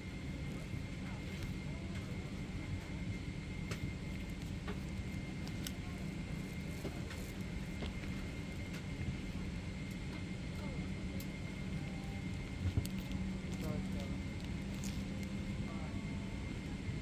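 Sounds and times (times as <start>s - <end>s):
airplane cabin hum: 0.0s - 17.0s
thin steady whine: 10.3s - 17.0s.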